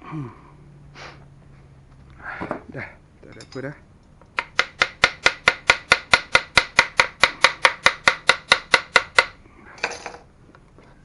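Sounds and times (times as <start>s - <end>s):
hammer tapping on metal: 4.4s - 9.3s.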